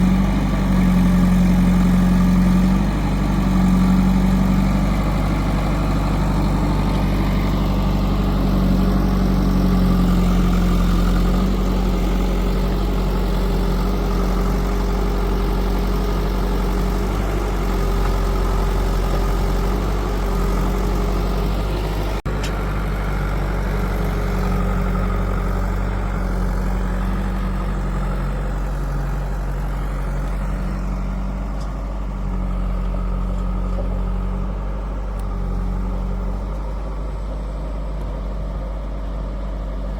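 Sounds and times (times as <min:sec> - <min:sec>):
diesel engines idling: 0:00.0 - 0:39.9.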